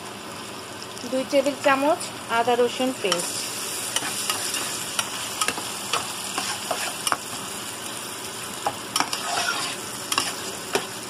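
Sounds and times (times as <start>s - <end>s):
onions sizzling in hot oil: 0.0s - 11.0s
spatula scraping a pan: 3.1s - 7.4s, 8.9s - 10.9s.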